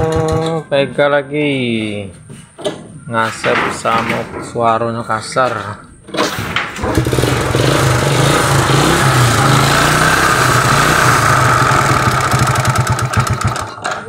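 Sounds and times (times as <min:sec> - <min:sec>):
motorcycle engine running roughly: 0:06.8 - 0:14.0.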